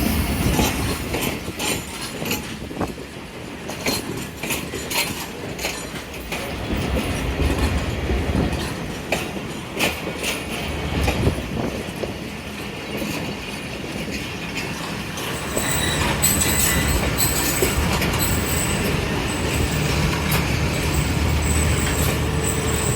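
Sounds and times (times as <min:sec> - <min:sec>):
train rumbling: 0:00.0 - 0:22.9
wheels clicking over rail joints: 0:00.0 - 0:22.9
high wheel squeal: 0:15.2 - 0:22.9.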